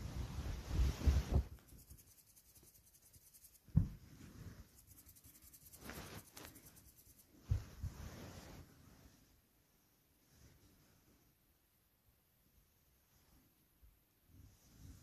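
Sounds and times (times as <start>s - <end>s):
faint scratchy rustling: 0.0s - 11.6s
soft low thumps: 3.7s - 4.1s.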